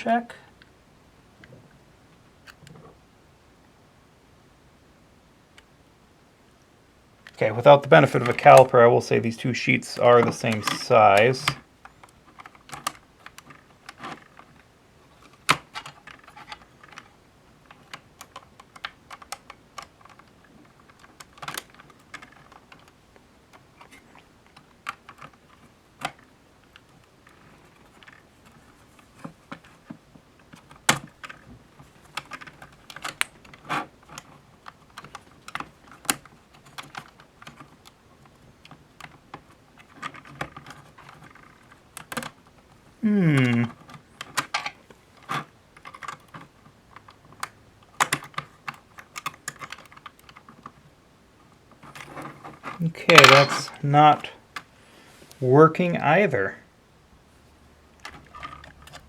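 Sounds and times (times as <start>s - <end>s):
small plastic clicks and taps: 17.7s - 28.6s, 43.4s - 50.8s.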